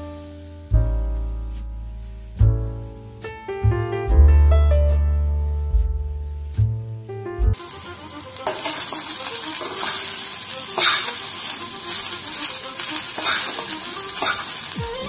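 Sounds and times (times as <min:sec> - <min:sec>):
vegetables sizzling in a pan: 0:00.0 - 0:00.7, 0:07.6 - 0:15.0
metal spatula scraping pan: 0:07.6 - 0:14.8.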